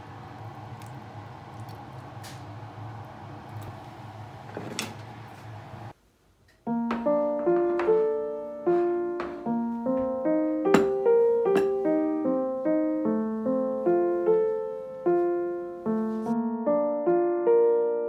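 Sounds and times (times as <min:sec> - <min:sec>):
gentle piano melody: 0:06.6 - 0:18.0.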